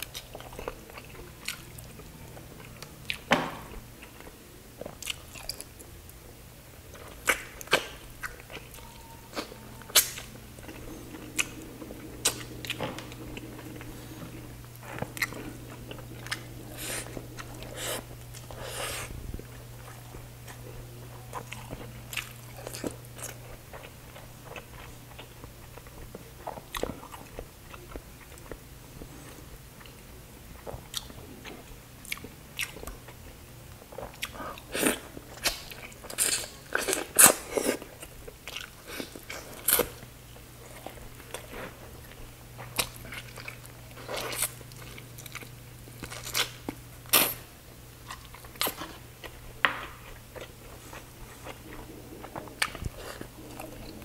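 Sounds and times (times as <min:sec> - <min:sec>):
man chewing and lip smacking: 0:00.0 - 0:03.3, 0:04.0 - 0:05.9, 0:06.9 - 0:13.8, 0:30.6 - 0:33.1, 0:34.0 - 0:40.1, 0:48.0 - 0:54.0
low hum: 0:08.5 - 0:24.8, 0:50.1 - 0:54.0.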